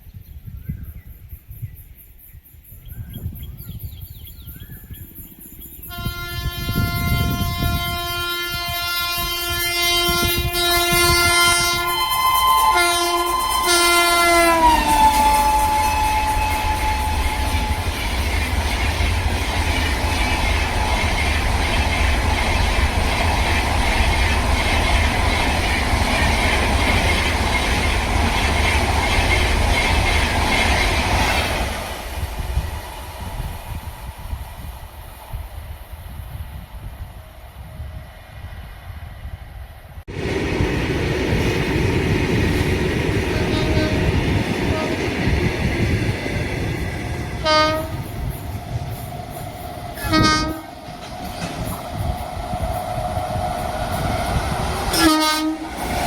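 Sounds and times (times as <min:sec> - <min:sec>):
train coaches rumbling past: 0:03.2 - 0:56.0
locomotive horn blast: 0:05.9 - 0:18.1, 0:43.3 - 0:45.2, 0:47.4 - 0:48.2, 0:50.0 - 0:50.8, 0:54.9 - 0:55.8
wheels clacking on rail joints: 0:41.2 - 0:56.0.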